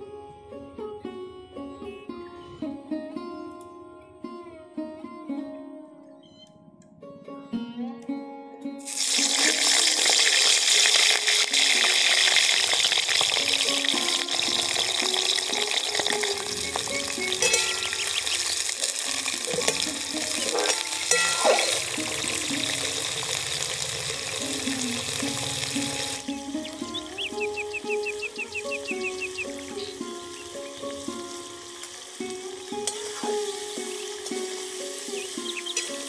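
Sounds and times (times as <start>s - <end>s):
background music: 0.0s - 36.0s
vegetables sizzling in hot oil: 8.9s - 36.0s
spoon scraping a pan: 13.8s - 22.8s, 32.8s - 36.0s.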